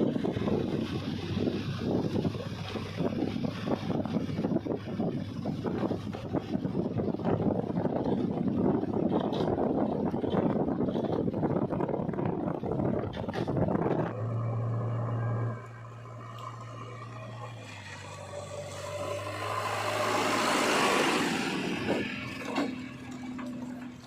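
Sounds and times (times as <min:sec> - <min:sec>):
heavy machinery diesel engine: 0:00.0 - 0:24.0.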